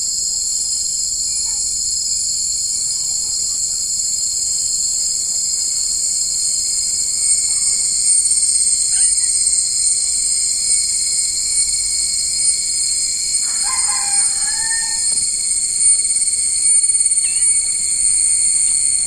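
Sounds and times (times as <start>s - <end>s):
high-pitched insect chorus: 0.0s - 19.0s
drawn-out call: 8.7s - 19.0s.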